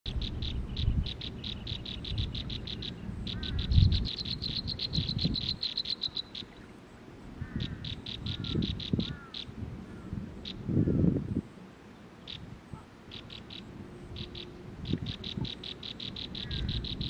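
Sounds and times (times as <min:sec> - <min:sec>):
nestlings chirping rapidly: 0:00.1 - 0:06.6, 0:07.5 - 0:09.5, 0:13.1 - 0:17.0.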